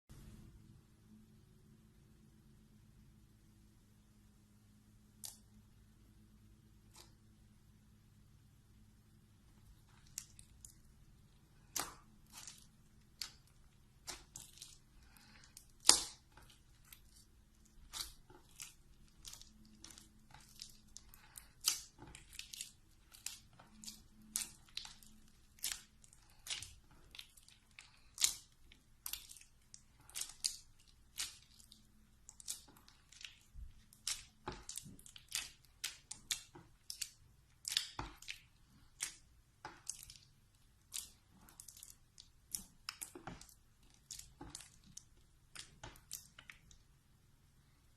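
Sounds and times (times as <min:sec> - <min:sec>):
slime squishing with wet clicks: 0:05.0 - 0:05.7, 0:06.6 - 0:07.5, 0:09.4 - 0:47.3
sharp slime pop: 0:15.8 - 0:16.2.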